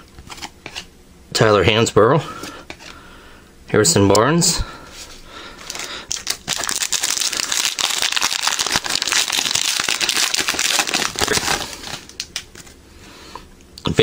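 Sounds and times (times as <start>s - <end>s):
wrapper tearing and crinkling: 5.7s - 12.8s.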